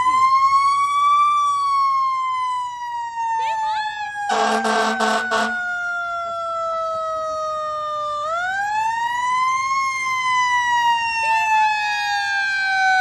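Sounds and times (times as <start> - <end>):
fire truck siren wailing: 0.0 - 13.0
loud horn blasts: 4.3 - 5.7.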